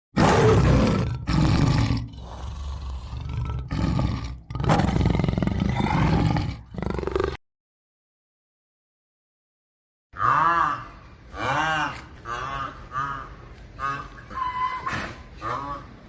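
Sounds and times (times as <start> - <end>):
big cat roaring: 0.2 - 7.4.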